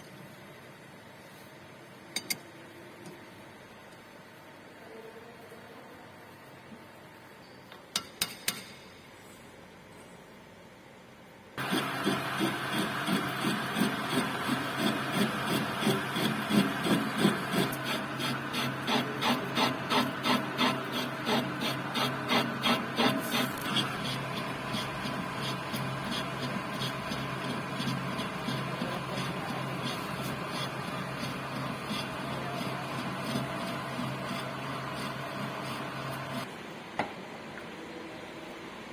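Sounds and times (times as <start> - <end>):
metal lathe humming: 11.6 - 36.5
rhythmic tool scraping: 11.6 - 36.5.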